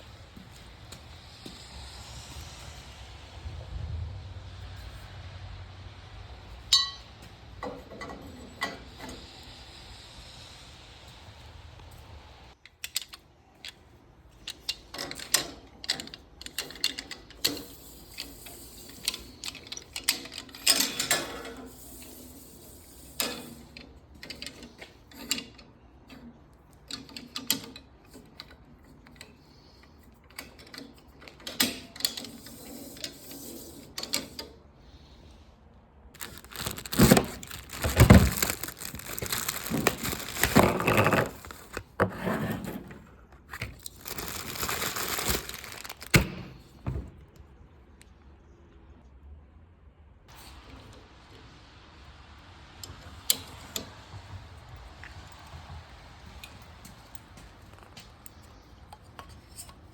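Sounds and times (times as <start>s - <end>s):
metal hardware clicks and clatter: 12.6s - 34.6s.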